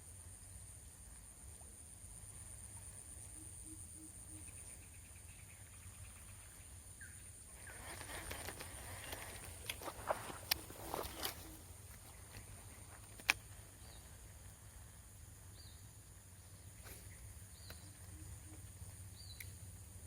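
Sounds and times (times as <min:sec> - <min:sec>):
rustling: 0:07.7 - 0:13.6.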